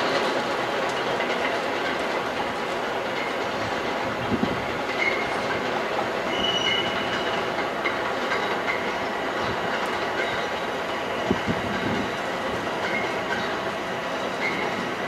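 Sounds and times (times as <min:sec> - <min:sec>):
train rattling and clattering: 0:00.0 - 0:15.0
high wheel squeals: 0:06.3 - 0:07.4.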